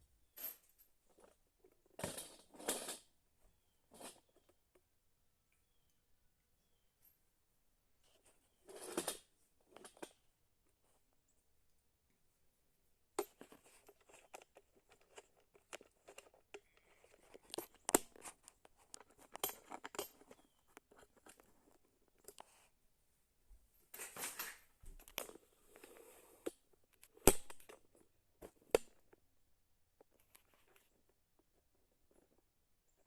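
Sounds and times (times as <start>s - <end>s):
clicks and knocks of parts handled: 13.2s - 22.6s, 23.9s - 25.4s, 26.4s - 29.2s.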